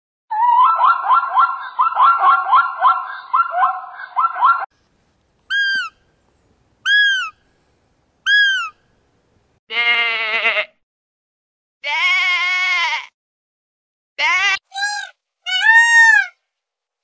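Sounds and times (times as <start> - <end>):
animal calls rising and falling: 5.5 - 6.0, 6.8 - 7.4, 8.3 - 8.8, 14.2 - 16.4
quavering bleats: 9.7 - 10.8, 11.8 - 13.1.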